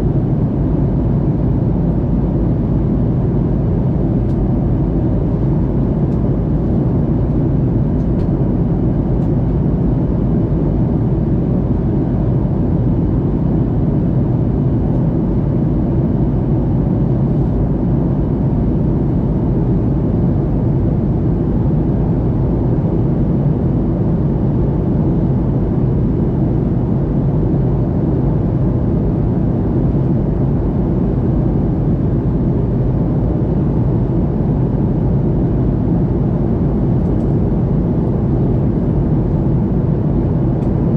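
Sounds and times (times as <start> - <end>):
airplane cabin rumble: 0.0 - 40.9.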